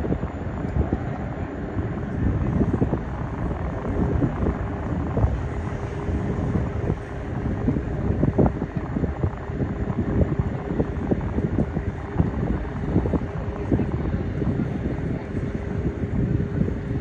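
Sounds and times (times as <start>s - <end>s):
aircraft engine rumble: 0.0s - 17.0s
faint steady engine tone: 0.0s - 17.0s
wind buffeting microphone: 0.0s - 17.0s.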